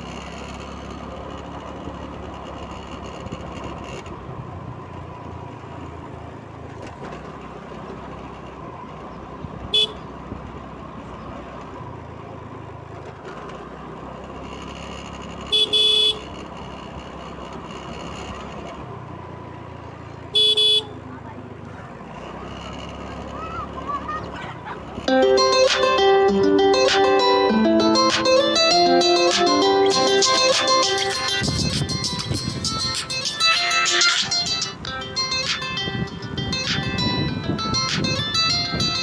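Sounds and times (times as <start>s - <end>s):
traffic engine noise: 0.0s - 39.0s
vehicle horn honking: 9.7s - 10.1s, 15.5s - 16.4s, 20.3s - 21.1s.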